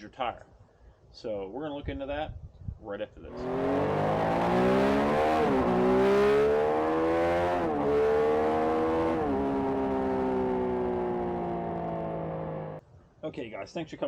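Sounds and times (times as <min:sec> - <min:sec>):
engine accelerating through gears: 0:03.3 - 0:12.8.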